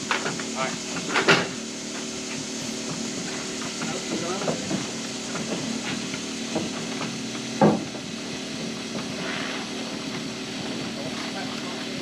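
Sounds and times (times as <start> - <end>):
steady machine hum: 0.0 - 12.0
loud wooden knock: 7.6 - 7.9.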